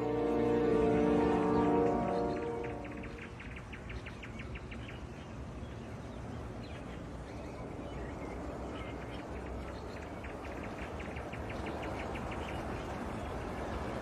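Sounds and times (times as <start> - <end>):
background music: 0.0 - 3.3.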